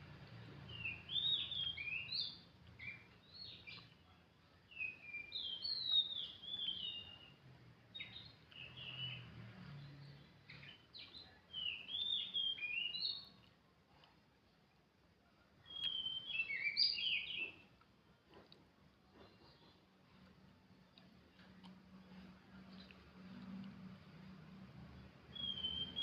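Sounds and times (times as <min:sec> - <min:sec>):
bird singing whistled notes: 0:00.7 - 0:03.9, 0:04.7 - 0:13.4, 0:15.6 - 0:17.6, 0:25.2 - 0:26.0.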